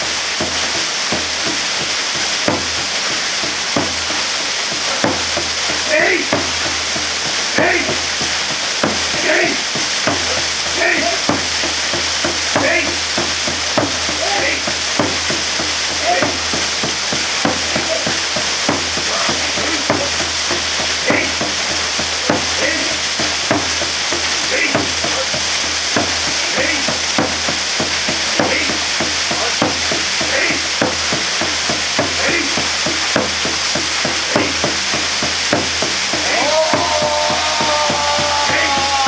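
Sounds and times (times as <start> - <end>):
small sharp splashes: 0.0 - 39.0
waterfall pouring: 0.0 - 39.0.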